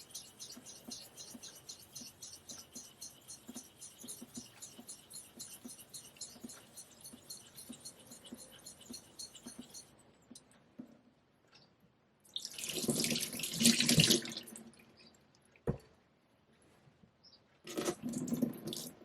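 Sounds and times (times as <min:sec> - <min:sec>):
tap water running: 0:12.4 - 0:14.5.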